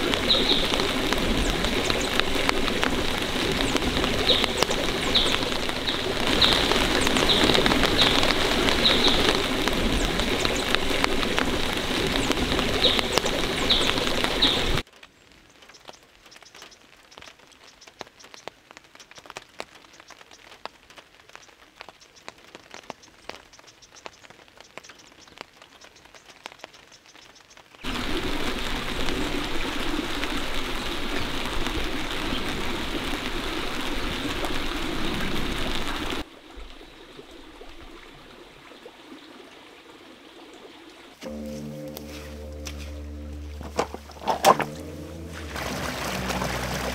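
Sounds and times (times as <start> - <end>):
patter of raindrops: 0.0 - 46.9
steady rain falling: 0.0 - 46.9.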